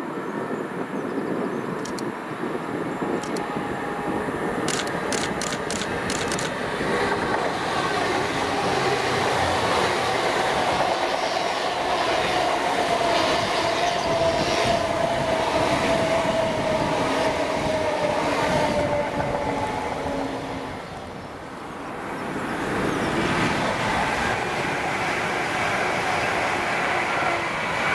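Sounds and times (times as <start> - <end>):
train wheels rumbling on rails: 0.0 - 27.9
quick run of clicks: 4.6 - 6.6.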